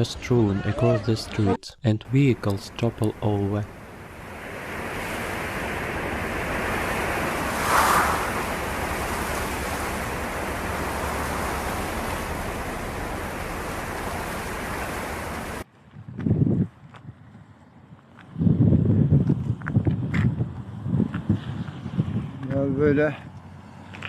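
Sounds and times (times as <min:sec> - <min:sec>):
steady rushing noise: 0:02.4 - 0:15.6.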